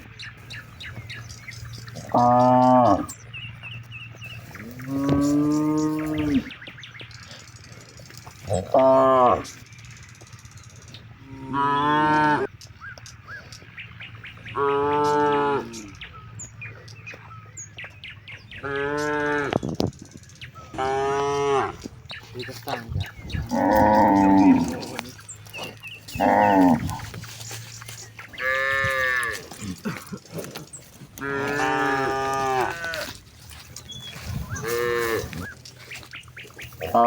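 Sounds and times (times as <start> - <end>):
cattle mooing: 1.5 - 3.2, 4.3 - 6.6, 8.2 - 9.6, 11.2 - 12.5, 14.5 - 16.0, 18.5 - 19.6, 20.7 - 21.9, 23.3 - 37.0.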